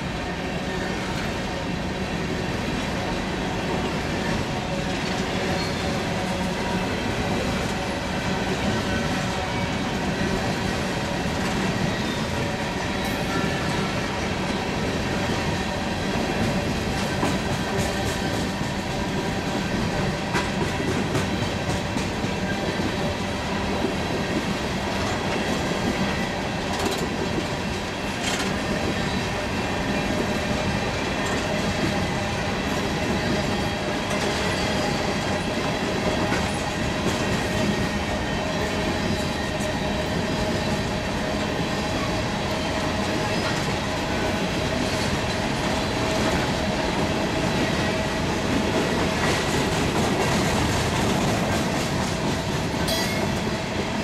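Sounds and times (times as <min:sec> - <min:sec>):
train wheels clacking over rail joints: 0:15.3 - 0:32.2, 0:32.8 - 0:54.0.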